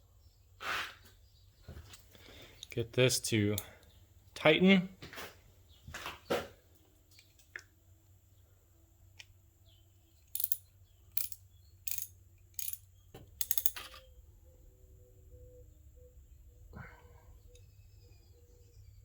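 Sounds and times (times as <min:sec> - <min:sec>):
socket ratchet clicking: 0:10.2 - 0:14.0.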